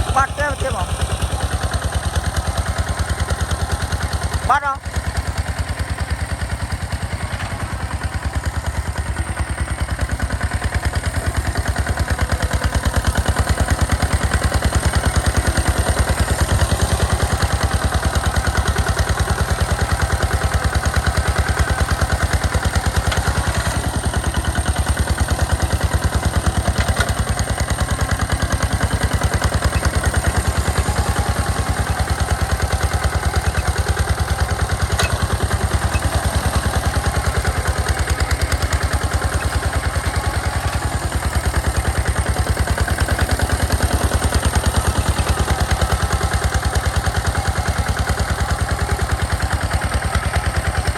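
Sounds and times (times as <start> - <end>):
hand tractor engine running: 0.0 - 50.9.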